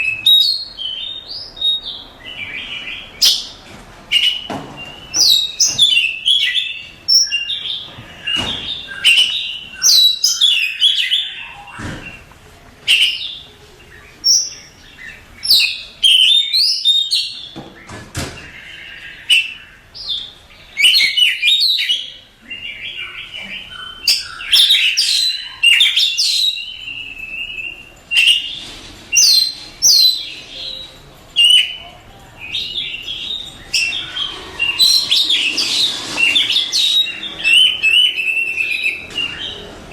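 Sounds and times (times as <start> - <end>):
bird singing whistled phrases: 0.0 - 11.8, 32.5 - 39.6.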